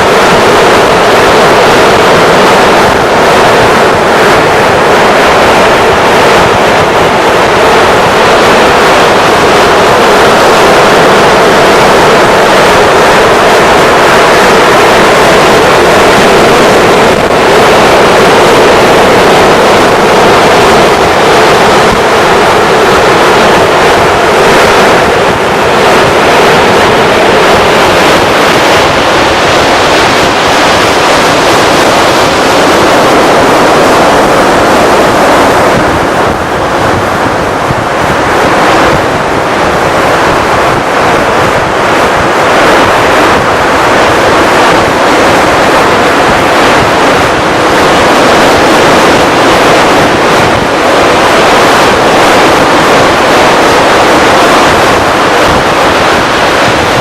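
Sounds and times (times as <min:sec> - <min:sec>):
surf: 0:00.0 - 0:57.0
wind rushing on microphone: 0:00.0 - 0:57.0.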